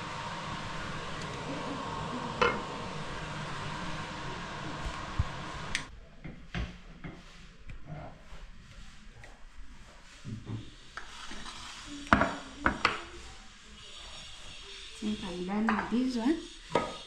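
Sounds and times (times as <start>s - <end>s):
steady hiss: 0.0s - 5.9s, 9.9s - 17.0s
utensils clinking against pots: 13.9s - 17.0s.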